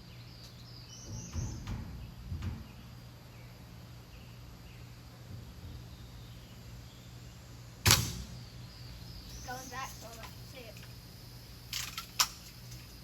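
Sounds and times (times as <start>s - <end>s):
steady low hum: 0.0s - 13.0s
faint bird chirps: 8.2s - 10.7s.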